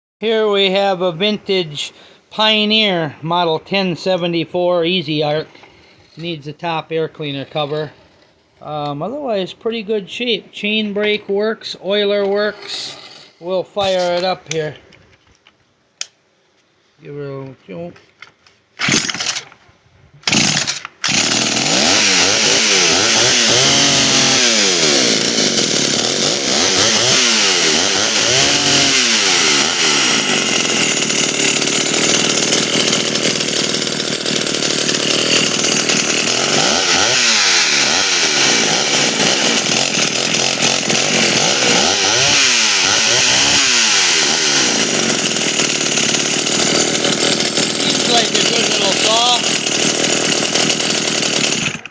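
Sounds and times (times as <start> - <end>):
chainsaw starting and revving: 12.7 - 14.2, 18.8 - 19.5, 20.2 - 51.9.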